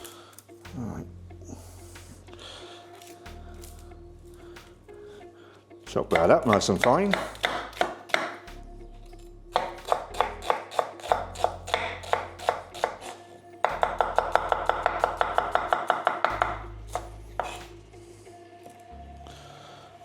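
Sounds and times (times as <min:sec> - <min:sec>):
knife chopping on board: 0:06.0 - 0:08.5, 0:09.5 - 0:17.7.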